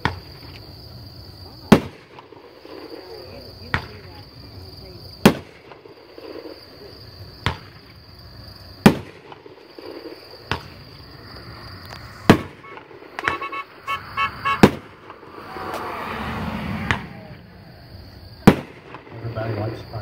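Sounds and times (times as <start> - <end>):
firework hiss: 1.6 - 20.0
firework shells bursting: 8.8 - 15.9, 18.4 - 19.6.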